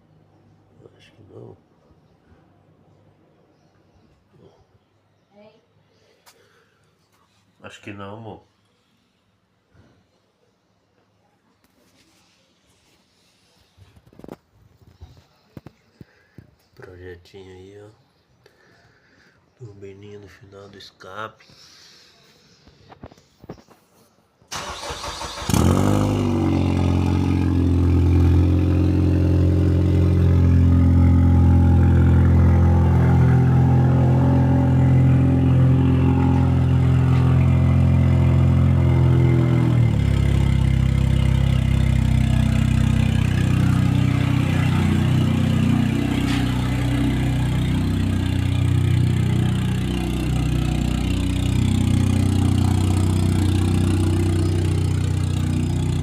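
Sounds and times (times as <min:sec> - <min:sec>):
car starter cranking: 0:24.5 - 0:26.4
car engine idling: 0:24.6 - 0:56.0
exhaust turbo whistle: 0:30.0 - 0:37.7.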